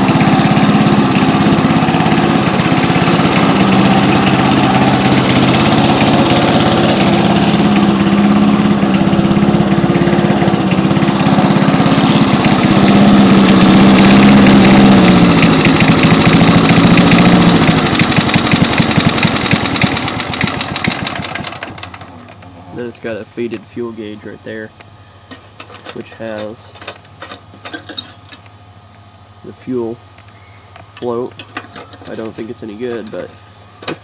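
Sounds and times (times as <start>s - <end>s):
lawn mower engine running: 0.0s - 24.3s.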